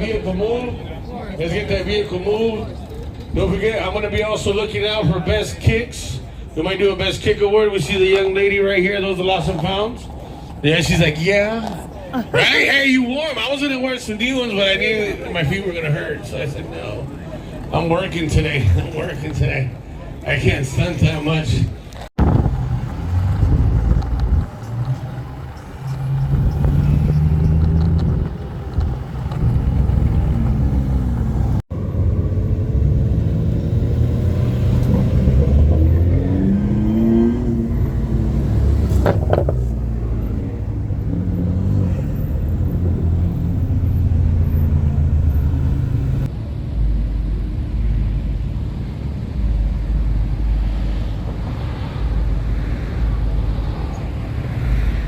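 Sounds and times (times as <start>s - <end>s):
car engines revving: 22.0s - 46.3s.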